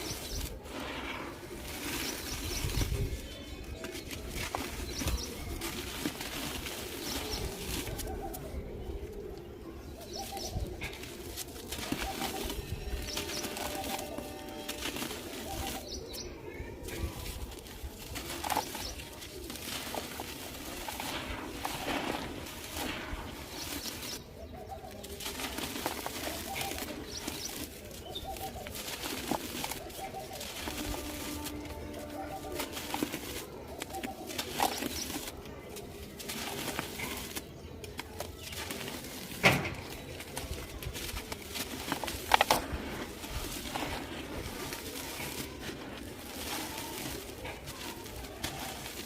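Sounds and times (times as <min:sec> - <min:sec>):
dry chunks crumbled by hand: 0:00.0 - 0:49.0
birds cooing: 0:18.2 - 0:39.1.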